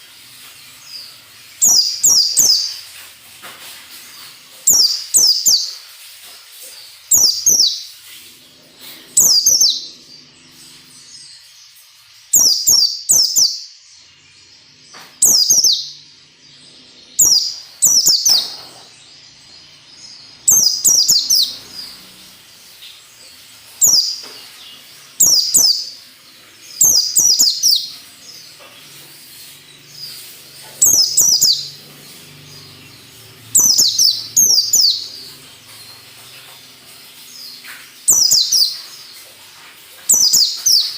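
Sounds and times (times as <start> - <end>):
bird song bursts: 0.0 - 3.0, 4.0 - 5.9, 6.7 - 11.5, 12.2 - 40.9.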